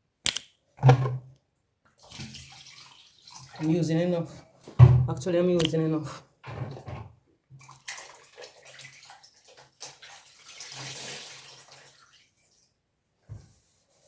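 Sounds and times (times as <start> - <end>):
water splashing from wrung rag: 2.0 - 4.1, 7.6 - 12.7.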